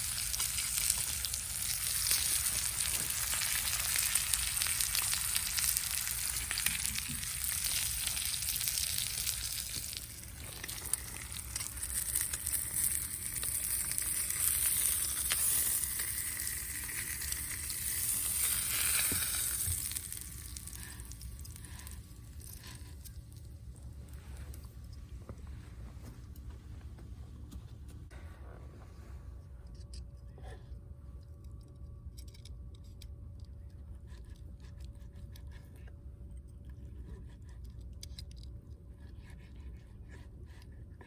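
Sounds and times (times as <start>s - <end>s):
food sizzling in a frying pan: 0.0s - 20.6s.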